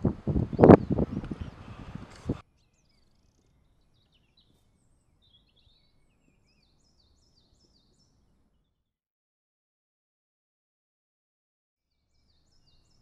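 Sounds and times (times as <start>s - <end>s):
faint birdsong chirps: 0.0s - 8.9s, 11.9s - 13.0s.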